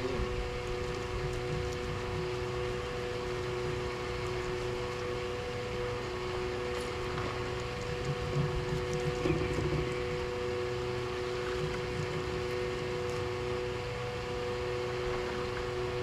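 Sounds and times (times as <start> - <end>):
boat motor running: 0.0 - 16.0.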